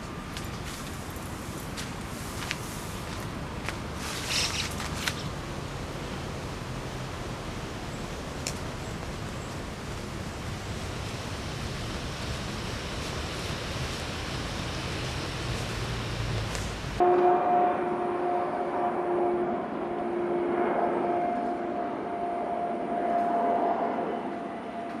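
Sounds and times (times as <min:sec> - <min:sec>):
rain falling: 0:06.5 - 0:17.0.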